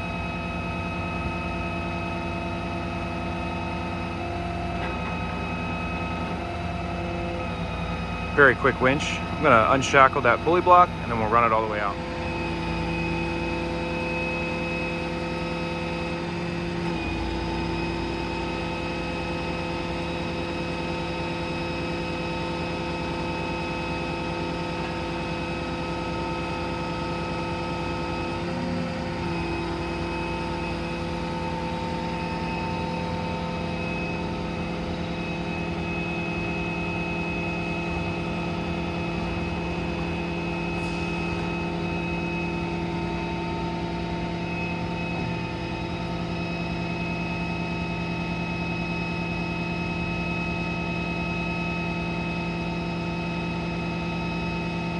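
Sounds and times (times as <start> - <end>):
diesel engine humming: 3.2 - 21.2.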